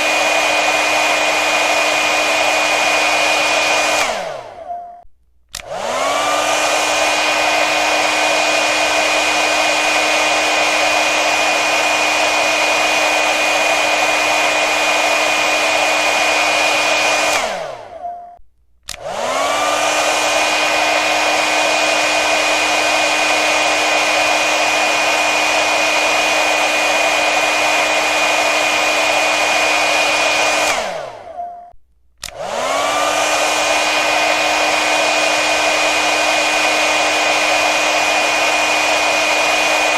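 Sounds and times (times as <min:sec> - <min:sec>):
hair dryer blowing: 0:00.0 - 0:04.8, 0:05.5 - 0:18.1, 0:18.8 - 0:31.4, 0:32.2 - 0:39.9
hair dryer switch click: 0:05.5 - 0:07.1, 0:18.8 - 0:20.0, 0:32.2 - 0:33.9.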